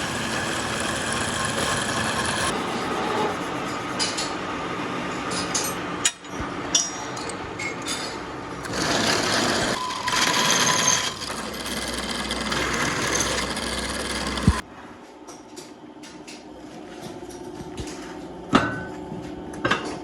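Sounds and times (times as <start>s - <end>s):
metalworking machinery grinding: 0.0s - 4.2s, 8.6s - 14.6s.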